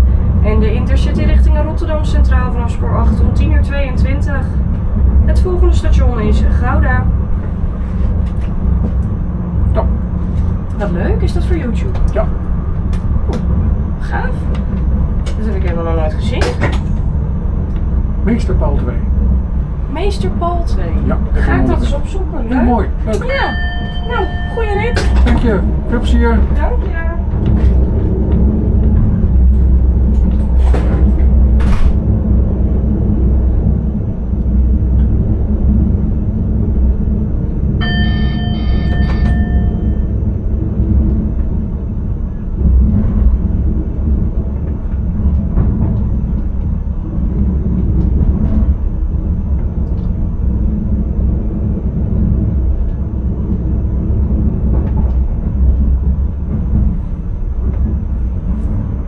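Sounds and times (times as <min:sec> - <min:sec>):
train rumbling: 0:00.0 - 0:59.0
electronic chime: 0:23.4 - 0:25.3, 0:37.8 - 0:40.1.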